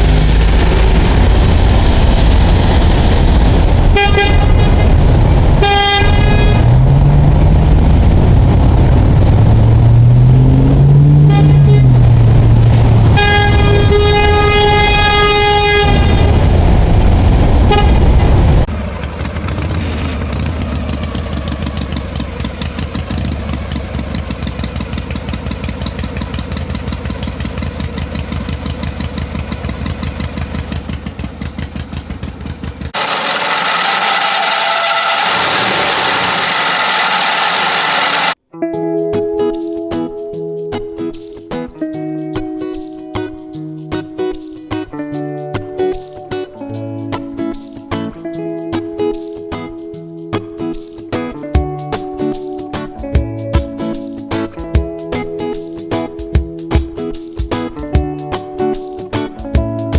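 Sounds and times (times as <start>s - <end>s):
vehicle horn tooting: 3.9s - 4.9s, 5.6s - 6.7s, 11.2s - 11.9s, 13.1s - 16.5s, 17.7s - 18.1s, 33.0s - 38.4s
motor rising and falling: 6.6s - 13.0s, 33.0s - 38.4s
fast mechanical rattle: 32.9s - 38.4s.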